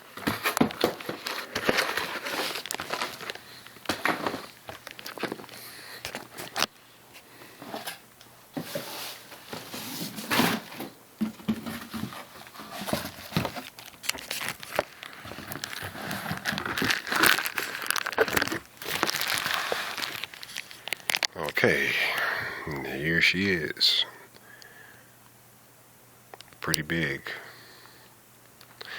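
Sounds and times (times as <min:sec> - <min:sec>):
packaging crinkling and tearing: 0:00.1 - 0:06.7, 0:11.9 - 0:21.6.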